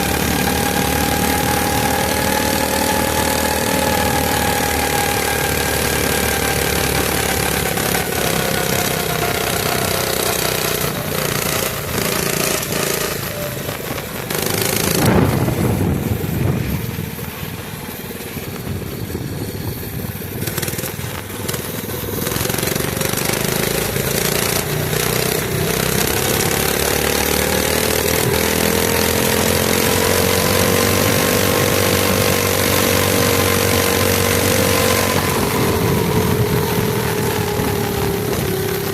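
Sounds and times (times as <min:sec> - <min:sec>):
small engine running: 0:00.0 - 0:38.9
wind gust: 0:10.9 - 0:21.2.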